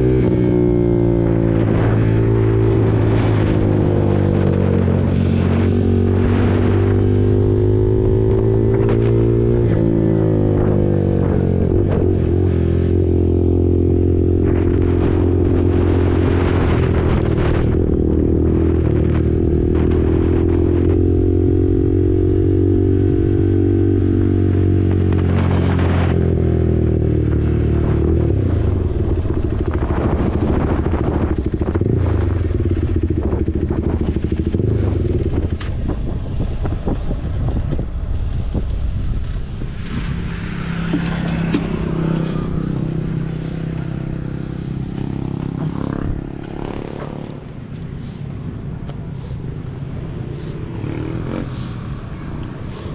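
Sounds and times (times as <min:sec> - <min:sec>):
motorcycle engine exhaust note: 0:26.1 - 0:52.9.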